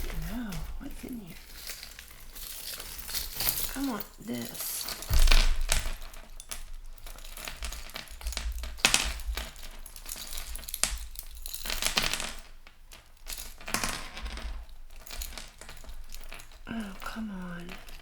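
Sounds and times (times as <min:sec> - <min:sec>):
jewelry rustling: 0:00.0 - 0:18.0
metal chains clinking: 0:00.0 - 0:18.0.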